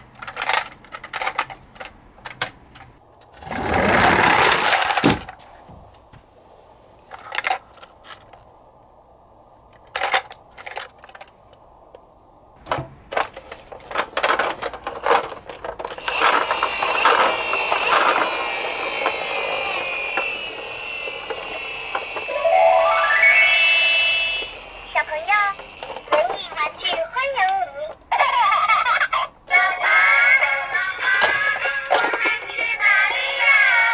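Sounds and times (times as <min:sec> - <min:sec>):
scratchy rattling noise: 0:16.0 - 0:27.1.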